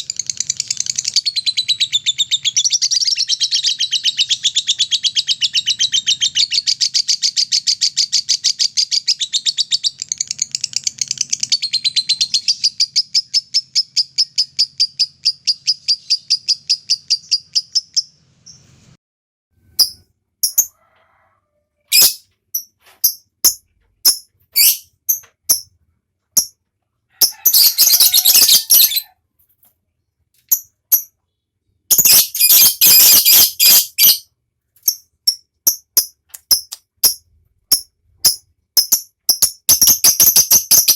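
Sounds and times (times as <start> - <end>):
sharp bird chirps: 0.0 - 18.9, 19.7 - 20.7, 21.9 - 25.8, 27.2 - 29.1, 30.4 - 40.9
harsh bird chattering: 27.2 - 29.1
bird rattling high trill: 31.9 - 34.2.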